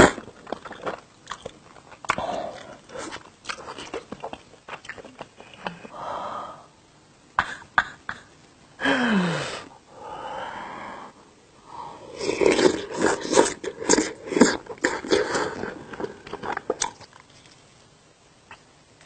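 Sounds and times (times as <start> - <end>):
chewing and biting: 0.0 - 5.8, 12.3 - 17.7
breathy exhales: 8.8 - 12.2.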